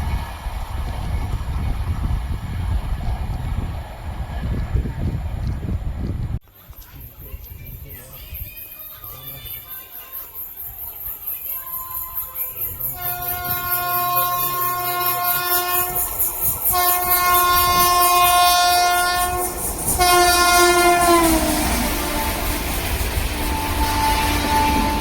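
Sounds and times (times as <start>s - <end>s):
train rumble: 0.0s - 25.0s
locomotive horn blasts: 13.0s - 16.1s, 16.7s - 25.0s.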